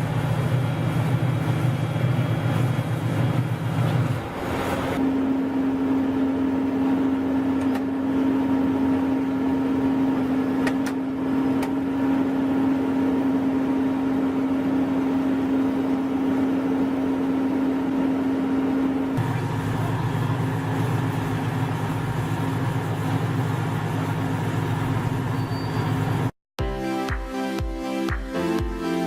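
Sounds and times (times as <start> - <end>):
heavy machine engine running: 0.0 - 13.0, 19.1 - 26.3.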